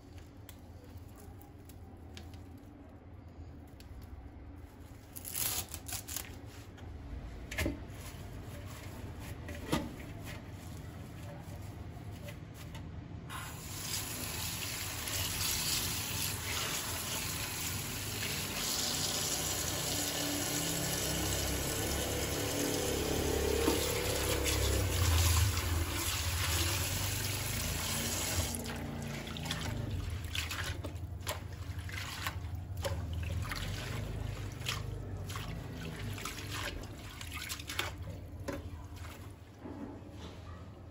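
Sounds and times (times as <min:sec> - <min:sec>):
tap water running into sink: 0:13.4 - 0:38.6.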